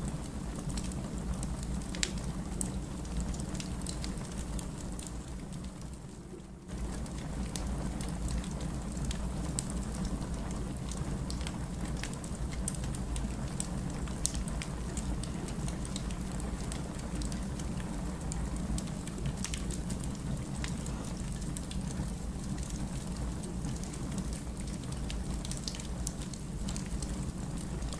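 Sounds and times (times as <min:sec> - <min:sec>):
low rumble of flames: 0:00.0 - 0:27.9
firewood crackles and pops: 0:00.2 - 0:27.9.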